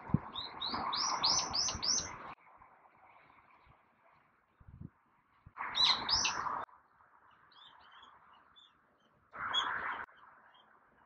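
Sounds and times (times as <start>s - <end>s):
faint bird chirps: 0.3s - 2.2s, 5.7s - 6.6s, 7.3s - 10.8s.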